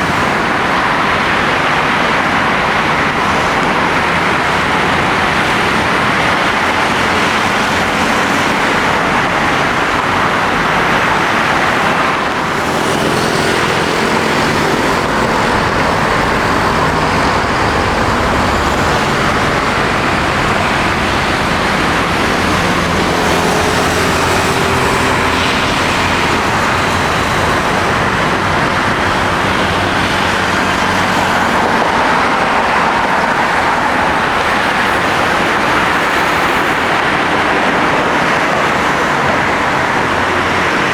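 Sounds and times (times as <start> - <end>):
jet engines running: 0.0 - 40.9.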